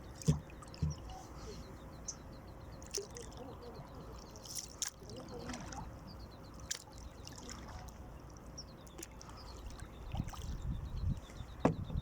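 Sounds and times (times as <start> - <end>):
water trickling and dripping: 2.8 - 11.3.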